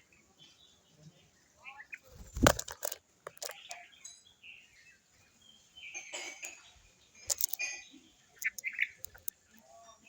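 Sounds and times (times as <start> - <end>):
birds chirping: 0.5 - 9.6
sharp clicks: 8.4 - 9.3.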